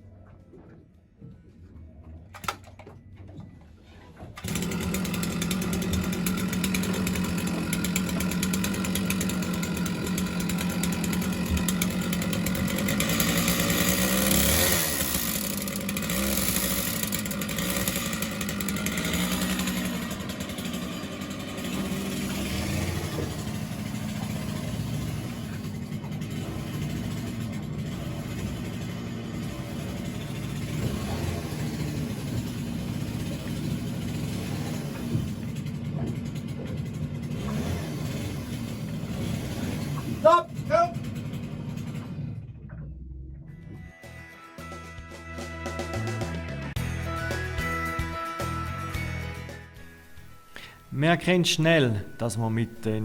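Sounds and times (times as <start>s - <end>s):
winch motor running: 4.2s - 43.9s.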